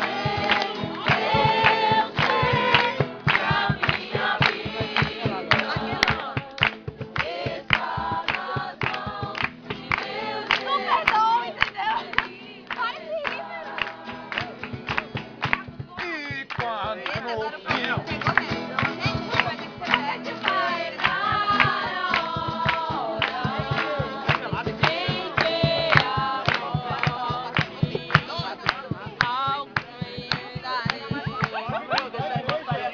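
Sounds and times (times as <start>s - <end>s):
steady beat of sharp strikes: 0.0s - 10.1s, 14.2s - 20.1s
group singing a worship song: 0.0s - 14.8s, 19.9s - 32.9s
steady rhythmic beat: 0.0s - 32.9s.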